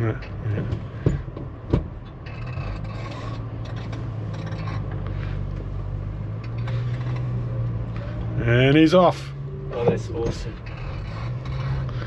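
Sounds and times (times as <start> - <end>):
small truck engine running: 0.0 - 12.0.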